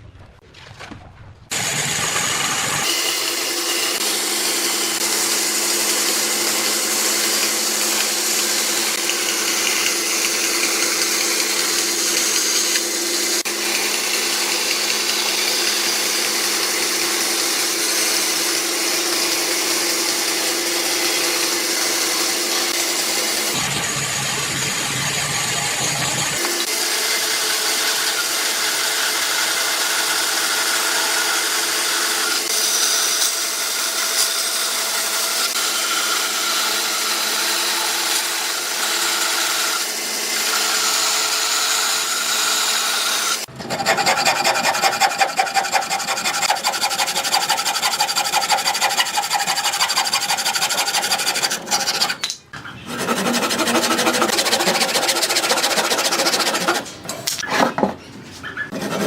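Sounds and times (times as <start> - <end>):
file strokes on wood: 43.4 - 57.0, 58.7 - 59.0
rubbing on wood: 43.7 - 52.2, 52.8 - 56.9.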